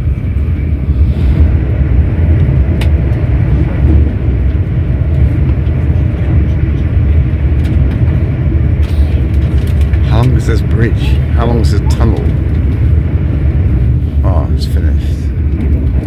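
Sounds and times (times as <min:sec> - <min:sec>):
train rumble inside carriage: 0:00.0 - 0:16.0.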